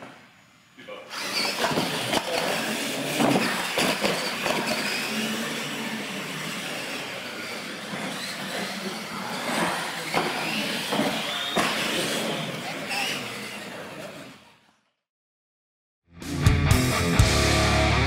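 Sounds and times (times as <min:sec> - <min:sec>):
electric motors whining: 0:01.1 - 0:14.6.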